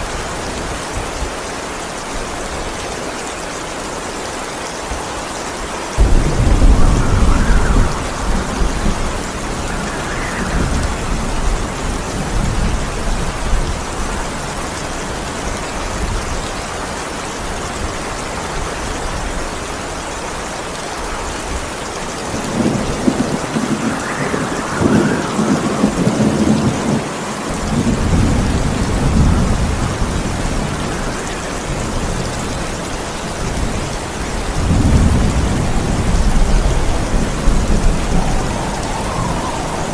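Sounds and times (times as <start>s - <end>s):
heavy rain: 0.0s - 39.9s
thunder rumbling: 6.0s - 16.7s, 21.5s - 39.9s.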